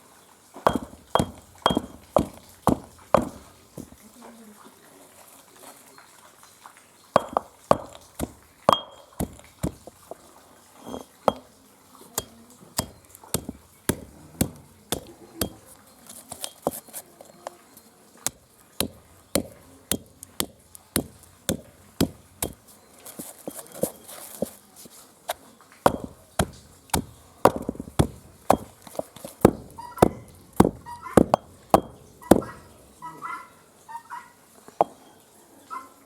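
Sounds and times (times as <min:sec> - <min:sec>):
sharp knocks breaking nuts: 0:00.7 - 0:04.0, 0:07.2 - 0:10.1, 0:12.2 - 0:15.7, 0:18.3 - 0:22.6, 0:25.9 - 0:32.7.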